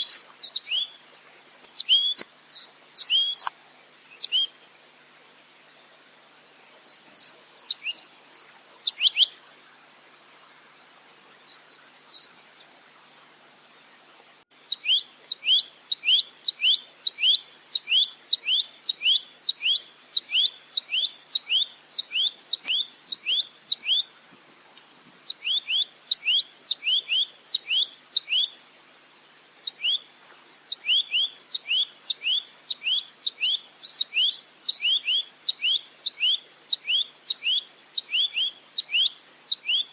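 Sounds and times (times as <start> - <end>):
nuthatch calling: 1.6 - 3.5, 30.7 - 39.9.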